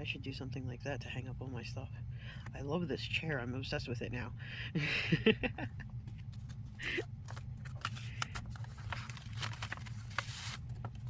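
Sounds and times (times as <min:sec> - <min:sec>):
low steady hum: 0:00.0 - 0:11.0
packaging rustling and crinkling: 0:07.2 - 0:11.0.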